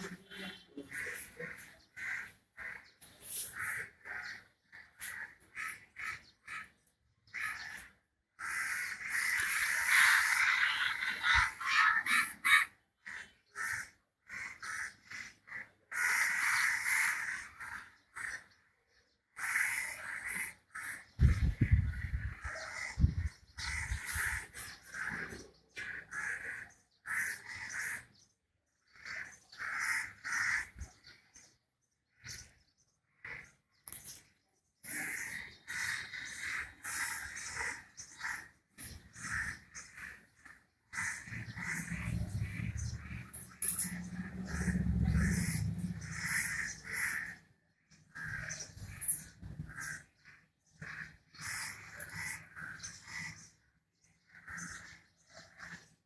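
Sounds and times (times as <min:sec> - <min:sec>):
harsh animal calls: 0:07.3 - 0:18.5, 0:34.8 - 0:47.5, 0:48.1 - 0:53.6
continuous harsh noise: 0:34.9 - 0:47.5.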